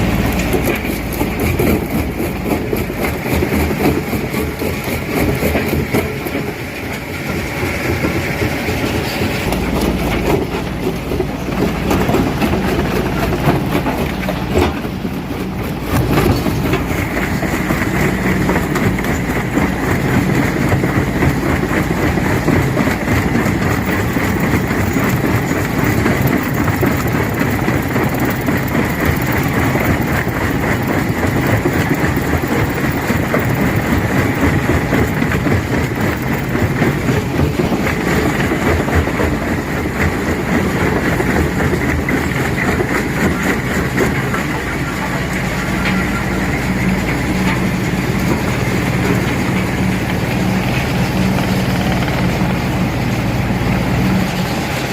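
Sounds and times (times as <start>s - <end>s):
rock crusher rumbling: 0.0s - 54.9s.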